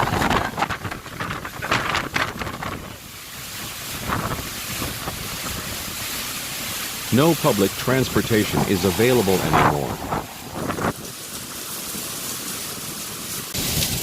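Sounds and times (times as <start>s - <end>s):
wind buffeting microphone: 0.0s - 3.0s, 7.8s - 11.2s.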